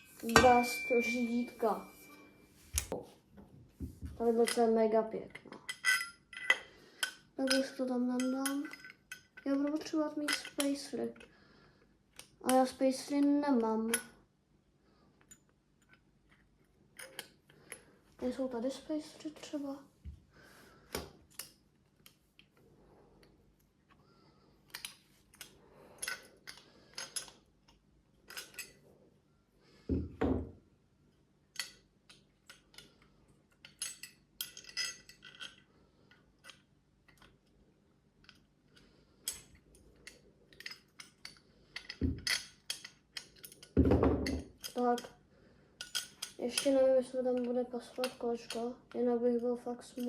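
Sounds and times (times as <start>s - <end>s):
metal clinks and taps: 39.3s - 45.1s.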